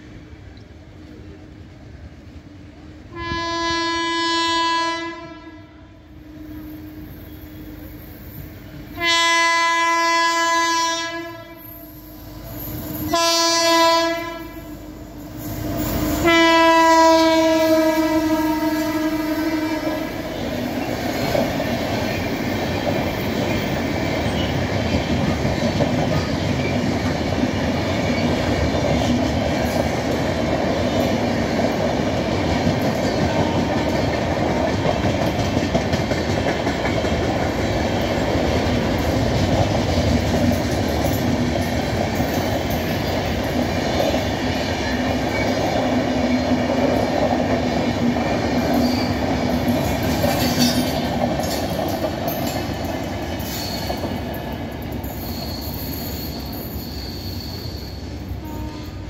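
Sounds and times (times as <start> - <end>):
train coaches running at speed: 0.0 - 59.0
locomotive horn blasts: 3.1 - 7.7, 8.9 - 11.8, 13.1 - 14.8, 16.2 - 20.4, 58.4 - 59.0.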